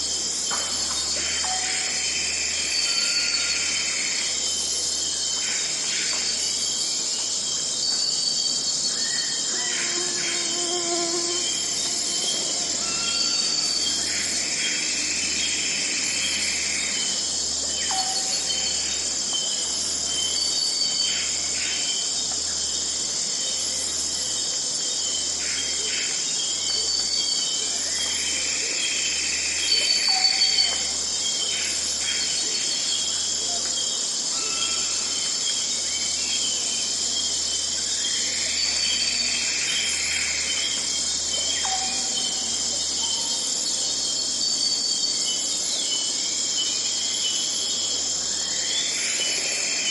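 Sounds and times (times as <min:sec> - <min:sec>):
insects chorus: 0:00.0 - 0:49.9.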